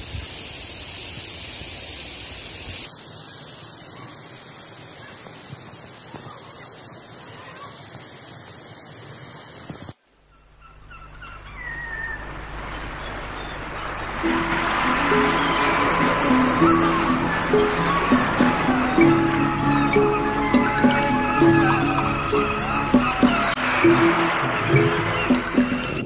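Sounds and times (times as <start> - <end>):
stream rushing over boulders: 0.0 - 10.0, 12.3 - 23.7
music: 14.2 - 26.0.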